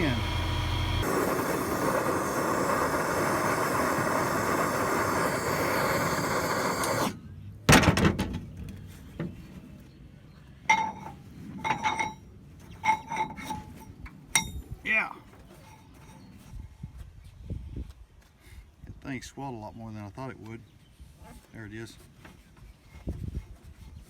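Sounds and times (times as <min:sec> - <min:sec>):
steady rushing noise: 0:01.0 - 0:06.7.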